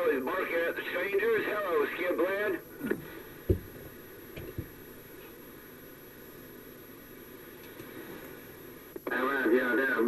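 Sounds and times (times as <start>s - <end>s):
radio static hiss: 0.0s - 10.0s
faint radio clicks: 7.6s - 9.2s.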